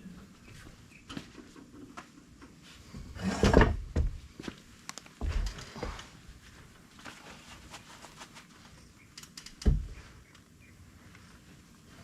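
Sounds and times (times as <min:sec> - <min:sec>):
metal knocks and clunks: 0:03.0 - 0:04.2, 0:09.6 - 0:10.0.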